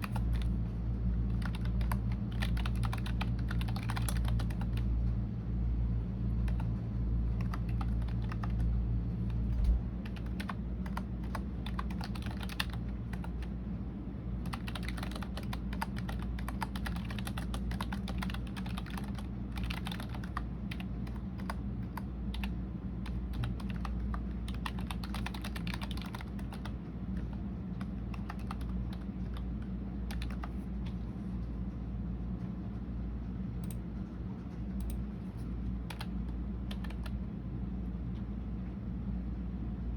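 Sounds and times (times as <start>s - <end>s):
keyboard typing clicks: 0.0s - 0.5s, 1.3s - 4.8s, 7.4s - 8.7s, 9.3s - 13.5s, 14.5s - 29.5s, 30.1s - 30.6s, 35.9s - 37.2s
steady low hum: 0.0s - 39.9s.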